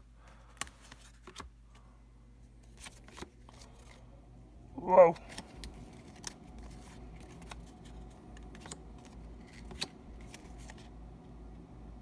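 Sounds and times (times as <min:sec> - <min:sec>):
low background hum: 0:00.0 - 0:12.0
cards and packaging clicking: 0:00.2 - 0:01.9, 0:02.6 - 0:04.0, 0:05.2 - 0:11.0.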